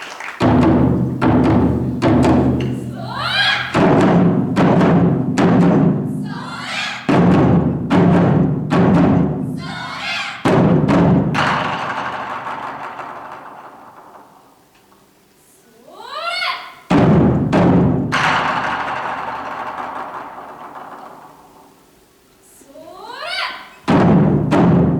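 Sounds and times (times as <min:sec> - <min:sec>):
taiko drums struck: 0:00.4 - 0:14.0, 0:16.9 - 0:21.2, 0:23.9 - 0:24.9
shouted calls: 0:02.6 - 0:04.0, 0:06.1 - 0:07.3, 0:09.4 - 0:10.6, 0:15.8 - 0:16.9, 0:22.6 - 0:23.8.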